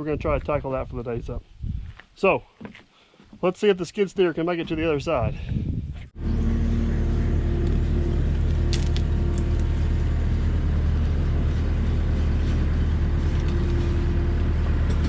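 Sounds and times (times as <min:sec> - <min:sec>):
skid steer engine running: 0:06.2 - 0:15.0.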